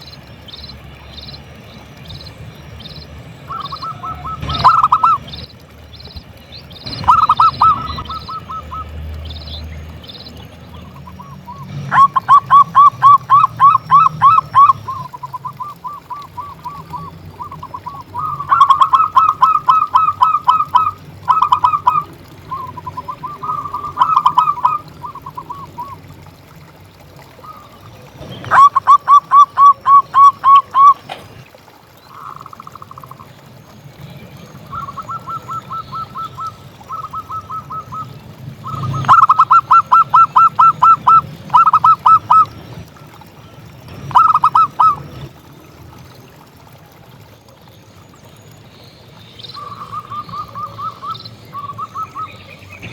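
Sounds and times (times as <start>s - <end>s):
dove cooing: 3.5s - 5.4s, 6.8s - 9.0s, 11.0s - 26.0s, 28.4s - 31.2s, 34.7s - 42.6s, 44.0s - 45.3s.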